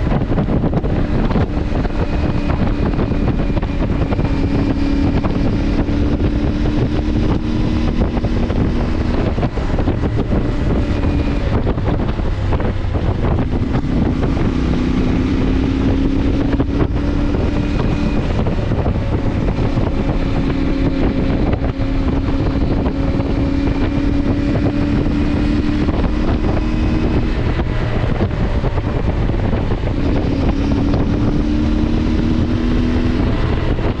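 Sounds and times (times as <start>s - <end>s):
motorcycle engine running: 0.0s - 34.0s
wind rush on microphone: 0.0s - 34.0s.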